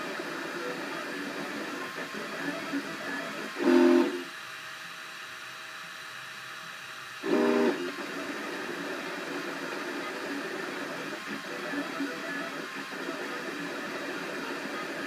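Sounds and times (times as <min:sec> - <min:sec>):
printer stepper motors whining: 0:00.0 - 0:04.3, 0:07.2 - 0:15.0.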